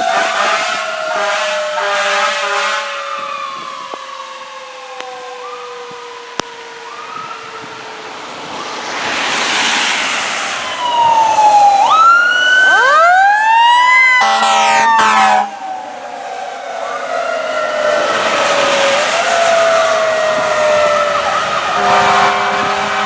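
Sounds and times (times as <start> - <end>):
air horn blast: 0.0 - 3.1, 14.2 - 15.5, 21.7 - 23.0
mechanical siren whining: 0.0 - 9.2, 10.6 - 23.0
electronic siren wails: 0.0 - 9.3, 10.5 - 23.0.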